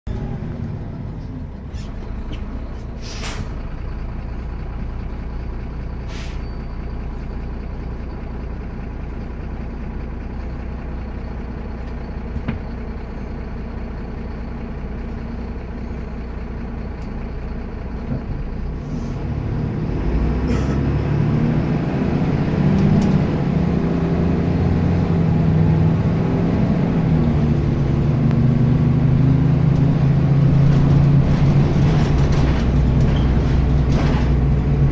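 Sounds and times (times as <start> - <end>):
diesel bus engine: 0.0 - 34.9
air brake hisses: 3.0 - 3.6, 6.1 - 6.5.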